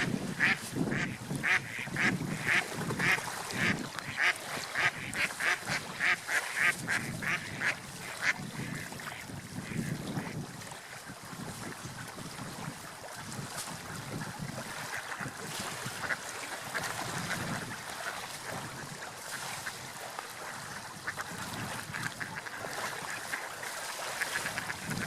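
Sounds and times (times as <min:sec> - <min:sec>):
ducks quacking: 0:00.0 - 0:10.4, 0:15.9 - 0:19.9, 0:20.5 - 0:25.0
water dabbling and splashing: 0:00.0 - 0:25.0.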